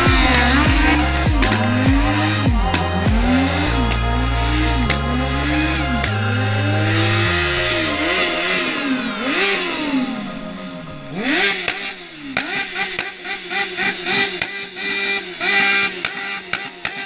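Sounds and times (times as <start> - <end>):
music with heavy bass: 0.0 - 12.6
motorcycle engine revving: 0.0 - 17.0.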